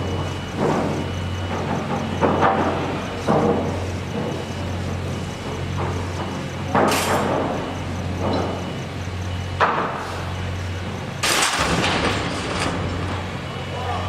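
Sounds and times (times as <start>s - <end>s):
low machine hum: 0.0s - 14.0s
sudden loud bangs: 11.2s - 13.2s.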